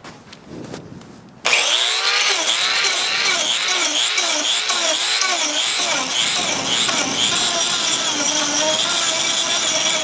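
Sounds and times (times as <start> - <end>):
angle grinder carving wood: 1.5 - 10.0.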